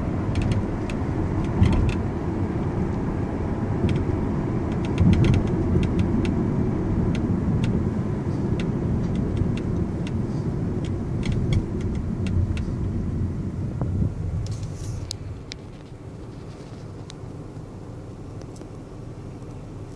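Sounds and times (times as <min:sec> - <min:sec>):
car road rumble: 0:00.0 - 0:19.9
sunroof ticks and clicks: 0:00.1 - 0:03.0, 0:03.8 - 0:06.4, 0:07.0 - 0:07.8, 0:08.4 - 0:12.9.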